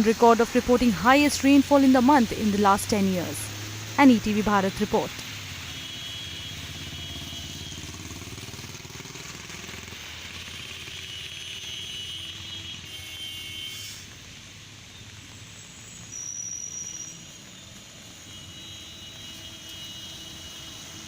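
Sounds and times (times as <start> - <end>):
steady background noise: 0.0 - 5.8
vehicles passing: 0.0 - 13.0, 17.1 - 21.0.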